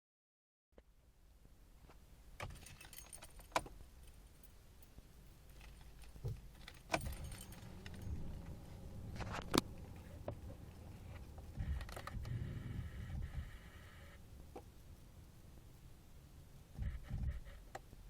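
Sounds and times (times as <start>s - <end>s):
car keys jangling: 2.4s - 12.2s
low hum: 4.0s - 17.7s
sharp key clicks: 5.6s - 8.5s.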